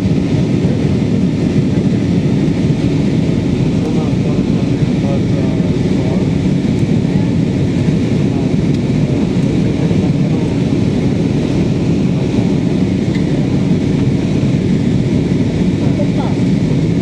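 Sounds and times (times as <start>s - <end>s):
jet engine cabin noise: 0.0s - 17.0s.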